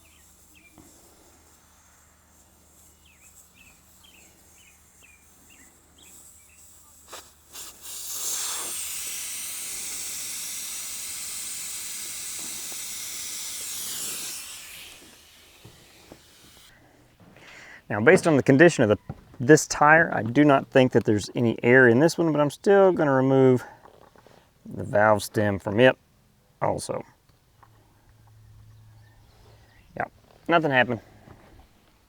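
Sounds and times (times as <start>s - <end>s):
air hissing from tire valve: 0.0s - 17.9s.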